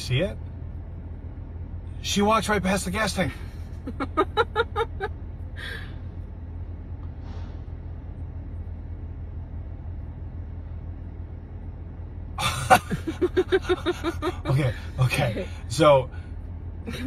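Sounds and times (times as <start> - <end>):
car engine idling: 0.0 - 17.0
short breathy hiss: 7.1 - 7.8.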